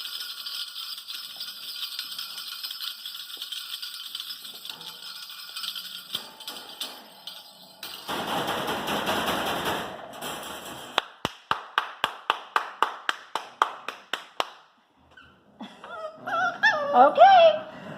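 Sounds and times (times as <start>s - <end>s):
bells rattling jingle: 0.0s - 10.8s
sharp claps or bangs: 8.1s - 14.7s.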